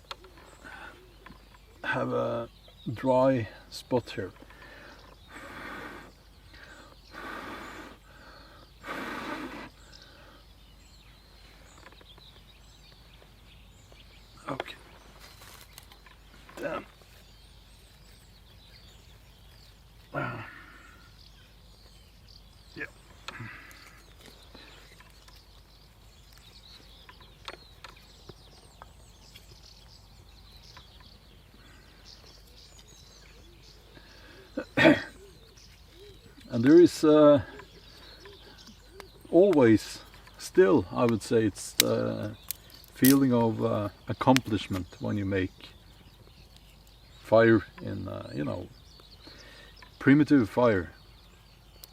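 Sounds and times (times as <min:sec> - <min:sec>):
faint songbirds chirping: 0:00.0 - 0:51.9
person blowing into tinder: 0:08.8 - 0:09.8
sharp clicks: 0:41.0 - 0:43.4.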